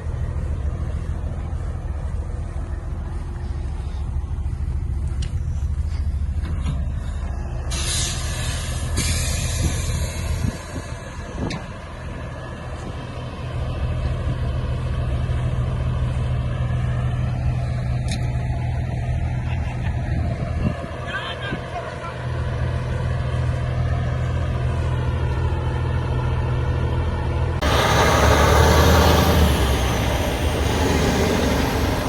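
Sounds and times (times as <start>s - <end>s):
air brakes hissing: 7.7s - 11.0s, 27.6s - 32.0s
diesel truck engine rumbling: 27.1s - 32.0s.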